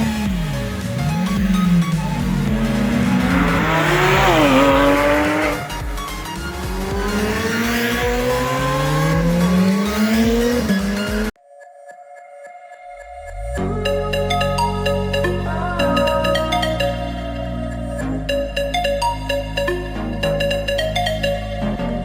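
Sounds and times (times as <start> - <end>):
car engine accelerating: 0.0 - 11.4
soft music with steady tones: 0.0 - 22.0.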